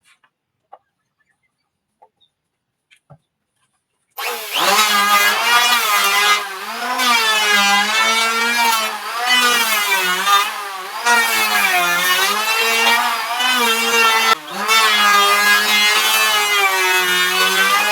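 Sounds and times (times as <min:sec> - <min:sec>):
power tool shaving wood: 0:04.2 - 0:17.9.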